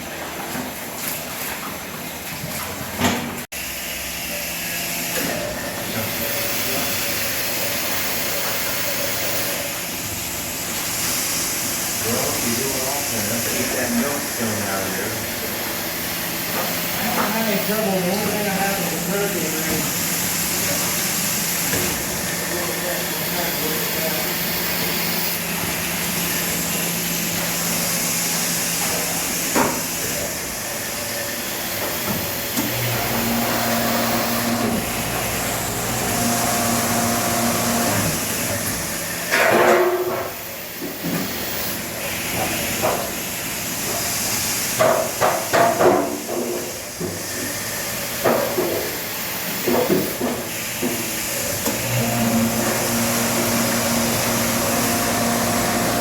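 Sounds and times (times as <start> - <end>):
milking equipment hissing: 31.0 - 39.0
motor hum: 32.5 - 38.7, 51.6 - 56.0.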